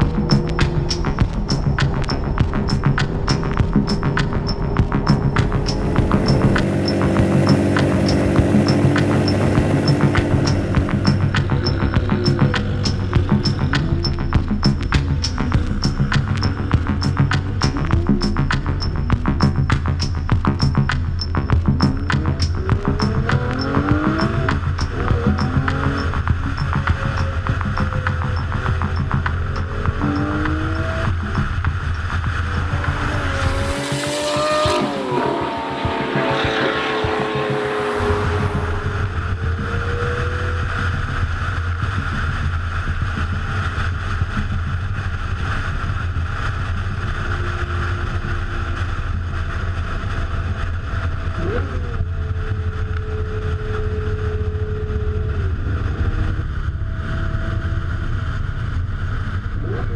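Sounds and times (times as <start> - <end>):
rush of higher noise: 0.0 - 14.6, 31.2 - 41.0
car engine revving: 0.0 - 59.9
low drone of driving noise: 0.0 - 59.9.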